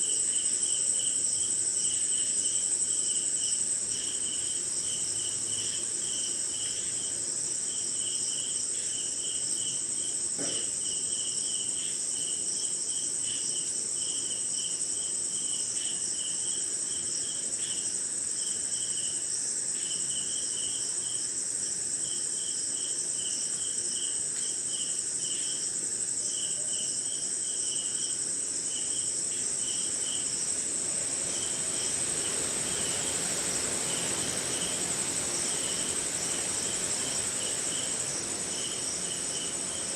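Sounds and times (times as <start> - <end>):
insects trilling: 0.0 - 39.9
rapid pulsed chirping: 29.0 - 39.9.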